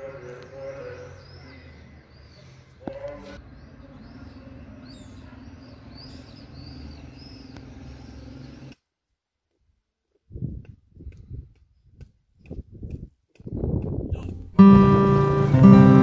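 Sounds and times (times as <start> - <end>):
small birds chirping: 0.0 - 8.8, 11.0 - 14.6.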